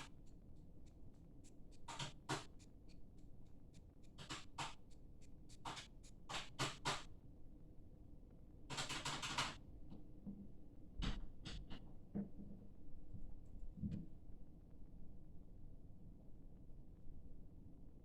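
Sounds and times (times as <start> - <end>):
scratchy rustling noises: 0.0 - 7.0.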